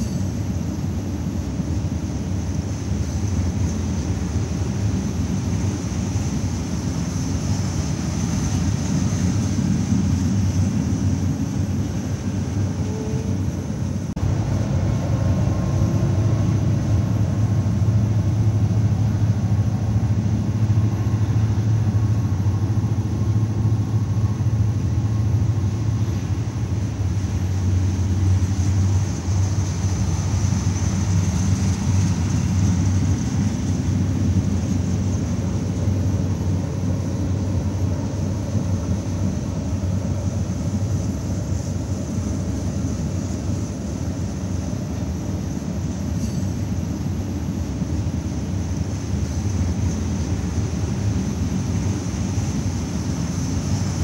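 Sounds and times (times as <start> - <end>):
diesel locomotive rumble: 0.0 - 54.0
steady high hiss: 0.0 - 54.0.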